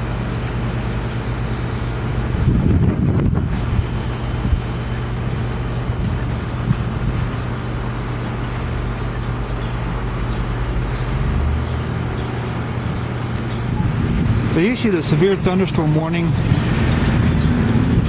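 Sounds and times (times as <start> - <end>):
constant low hum: 0.0 - 18.0
storm wind on microphone: 2.0 - 7.6, 12.8 - 18.0.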